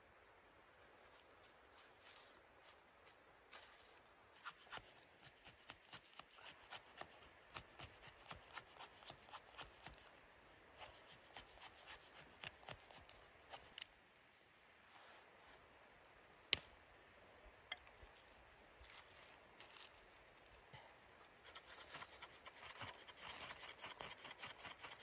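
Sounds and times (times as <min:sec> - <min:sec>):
light clicks and scrapes: 0:17.7 - 0:25.0.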